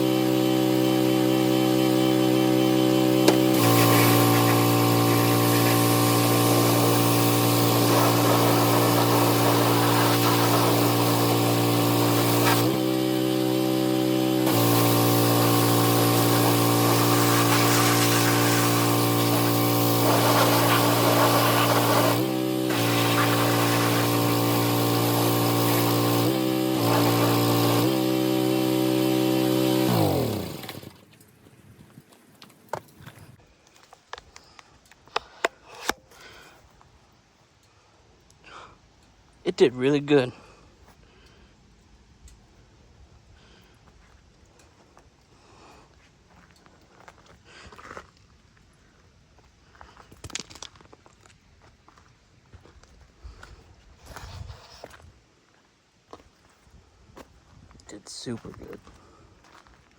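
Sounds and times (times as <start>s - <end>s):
pressure washer motor running: 0.0s - 31.2s.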